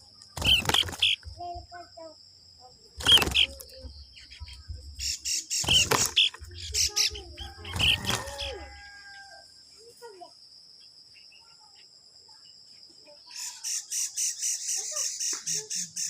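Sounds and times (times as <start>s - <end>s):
bird chirping sharp calls: 0.0s - 1.6s, 3.0s - 9.3s, 13.2s - 16.0s.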